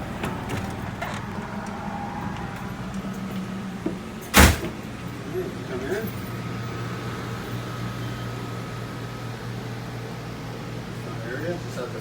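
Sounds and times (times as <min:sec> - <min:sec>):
engine idling with low hum: 0:00.0 - 0:12.0
loud short thump: 0:04.4 - 0:04.9.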